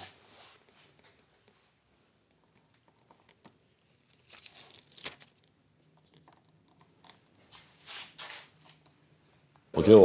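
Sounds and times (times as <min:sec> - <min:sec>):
plastic tape crinkling and peeling: 0:03.1 - 0:06.3.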